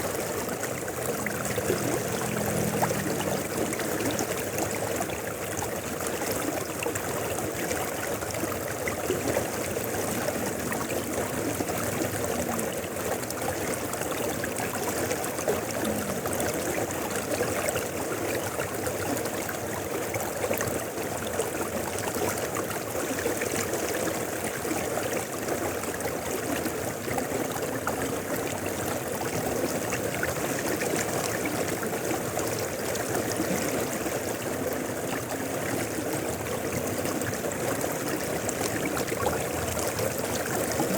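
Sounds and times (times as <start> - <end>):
river flowing: 0.0 - 40.9.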